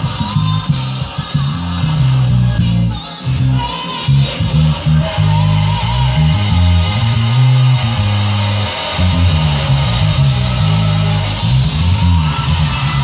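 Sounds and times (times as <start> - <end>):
bass guitar playing: 0.0 - 13.0
gospel backing track: 0.0 - 13.0.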